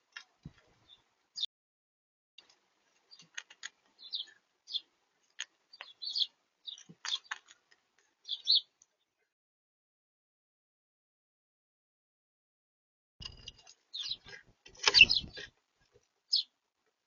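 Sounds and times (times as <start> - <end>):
small birds chirping: 0.0 - 1.5, 2.4 - 9.2, 13.2 - 16.6.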